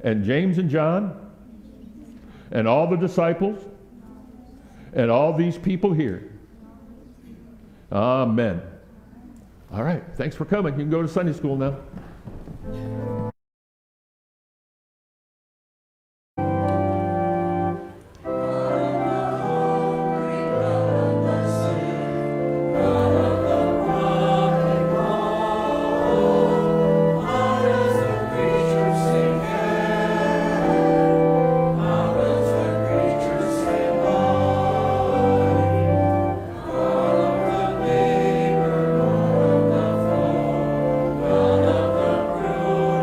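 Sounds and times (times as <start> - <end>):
choir singing church music: 16.4 - 43.0.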